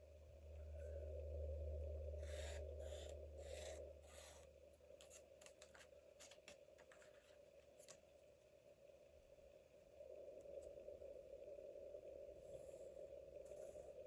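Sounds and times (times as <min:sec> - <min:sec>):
strokes rubbing across paper: 0:02.2 - 0:04.5.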